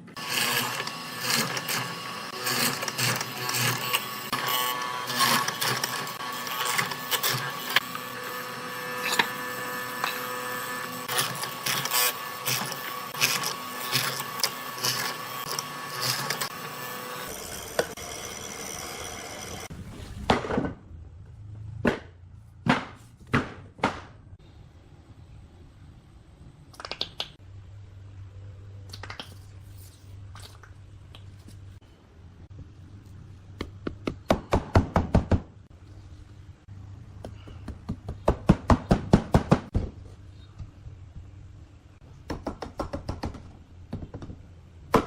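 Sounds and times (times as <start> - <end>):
power tool whining: 0.1 - 19.7.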